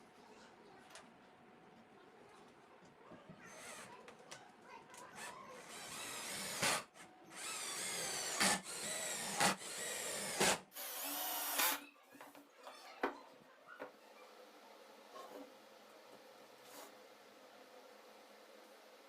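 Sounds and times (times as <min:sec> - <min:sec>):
power drill running: 0:05.2 - 0:11.8
sharp drill click: 0:07.4 - 0:11.8.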